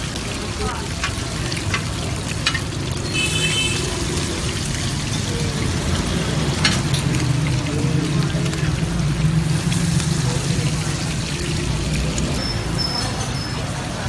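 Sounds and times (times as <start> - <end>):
kebabs sizzling in hot oil: 0.0 - 14.0
metal spatula clicking on pan: 1.0 - 2.7.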